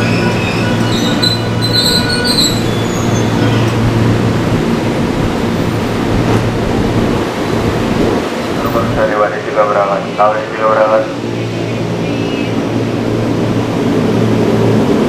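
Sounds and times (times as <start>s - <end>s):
train wheels squealing: 0.0s - 3.8s
train rumbling on rails: 0.0s - 15.0s.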